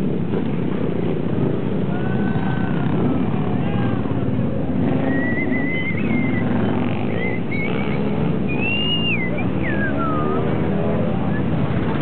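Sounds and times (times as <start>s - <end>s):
motorcycle engines running: 0.0s - 12.0s
high wavering whistle: 5.0s - 10.6s.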